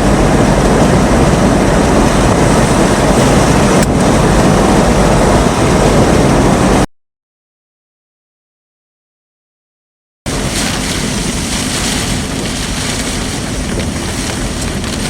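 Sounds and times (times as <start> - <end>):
heavy rain: 0.0 - 6.9, 10.3 - 15.0
storm wind rushing: 0.0 - 6.9, 10.3 - 15.0.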